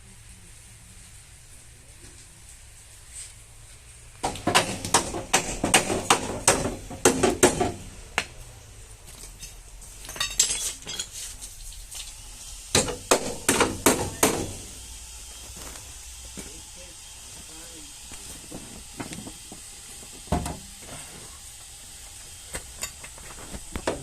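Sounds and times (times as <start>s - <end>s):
hammer tapping on sheet metal: 4.2s - 7.8s, 12.8s - 14.6s.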